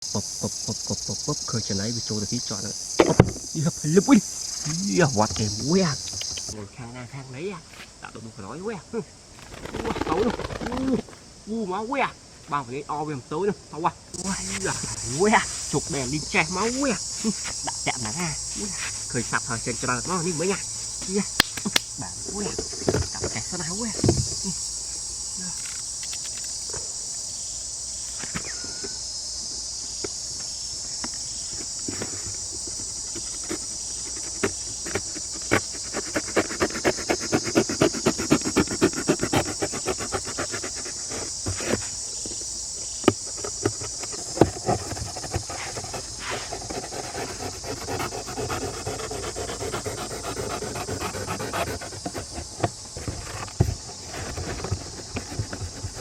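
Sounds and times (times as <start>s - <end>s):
crickets chirring: 0.0s - 56.0s
single knocks: 3.0s - 3.5s
rapid scratching taps: 32.6s - 41.8s.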